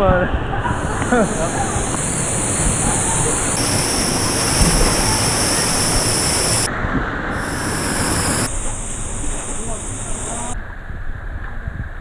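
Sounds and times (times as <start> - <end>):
river water rushing: 0.7 - 6.7, 7.4 - 10.6.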